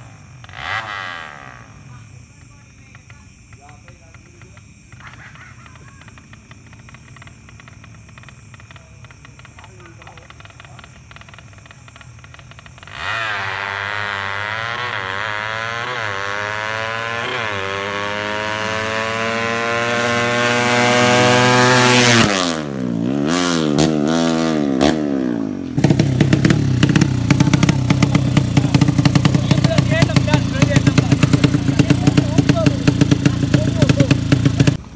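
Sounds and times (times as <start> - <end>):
short engine revs: 0.0 - 2.1, 5.0 - 34.8
motorcycle engine accelerating: 0.0 - 34.9
loud rapid pulsing engine: 12.6 - 22.5, 25.8 - 34.8.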